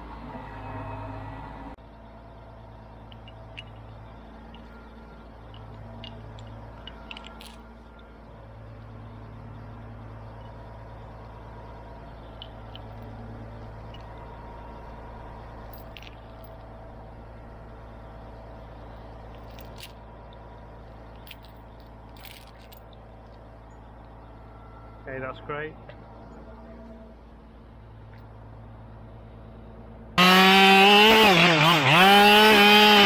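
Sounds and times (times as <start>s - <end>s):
engine humming: 0.0s - 33.0s.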